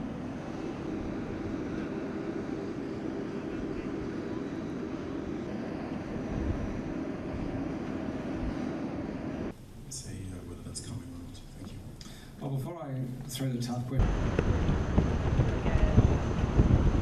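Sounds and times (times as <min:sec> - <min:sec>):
jet engine noise: 0:00.0 - 0:17.0.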